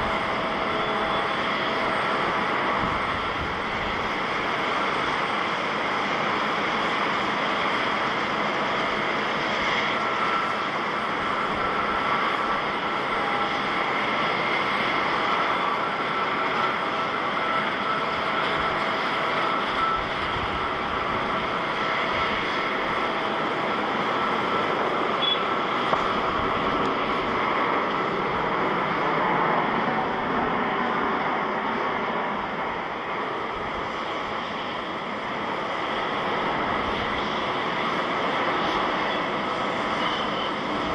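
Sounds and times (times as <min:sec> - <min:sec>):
faint high whine: 0:00.0 - 0:40.9
jet airliner engines running: 0:00.0 - 0:40.9.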